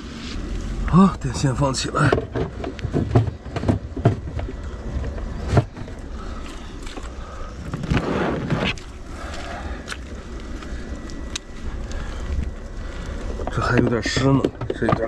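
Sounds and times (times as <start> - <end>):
rustling scrape: 0.0 - 0.8, 7.7 - 9.4.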